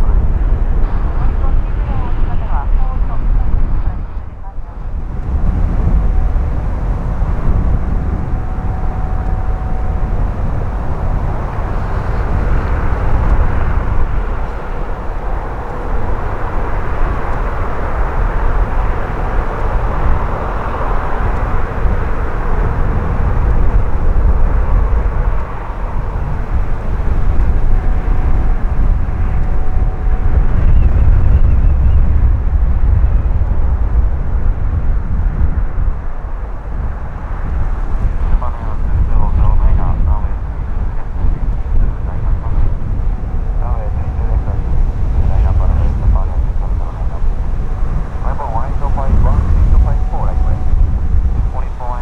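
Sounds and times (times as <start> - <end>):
jet engines roaring: 0.0 - 52.0
wind rumbling on microphone: 0.0 - 52.0.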